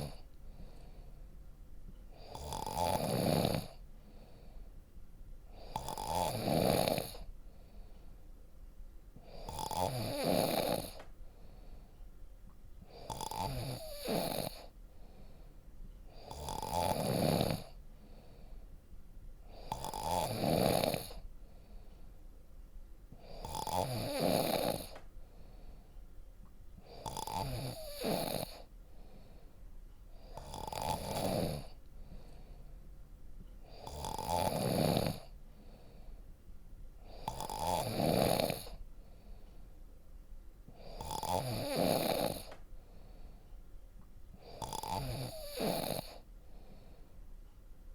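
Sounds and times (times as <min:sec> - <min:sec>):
deep snoring: 0:00.0 - 0:01.0, 0:02.1 - 0:04.5, 0:05.5 - 0:07.3, 0:09.2 - 0:11.0, 0:12.9 - 0:14.7, 0:16.1 - 0:18.4, 0:19.5 - 0:21.3, 0:23.2 - 0:25.0, 0:26.8 - 0:28.7, 0:30.2 - 0:32.5, 0:33.6 - 0:36.1, 0:37.0 - 0:38.8, 0:40.7 - 0:42.6, 0:44.4 - 0:46.7.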